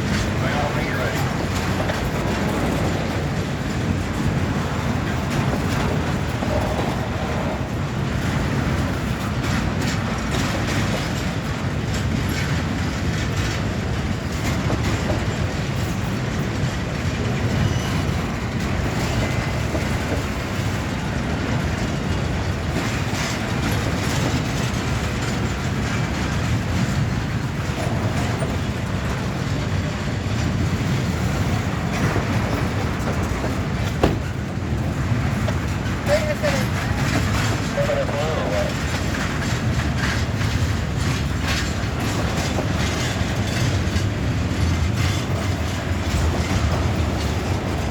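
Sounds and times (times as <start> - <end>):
freight train cars rolling past: 0.0 - 47.9
wheels clacking over rail joints: 0.0 - 47.9.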